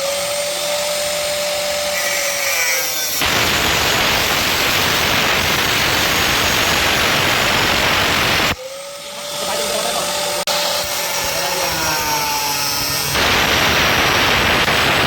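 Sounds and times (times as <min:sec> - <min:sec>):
angle grinder motor whine: 0:00.0 - 0:15.0
grinder disc rasping on metal: 0:00.8 - 0:06.6, 0:08.9 - 0:13.2.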